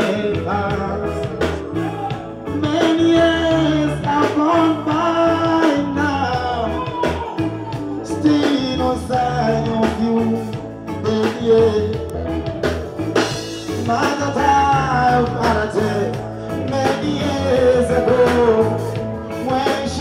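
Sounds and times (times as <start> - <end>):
person singing long sliding notes: 0.0 - 12.3
band with repeating bass line: 0.0 - 20.0.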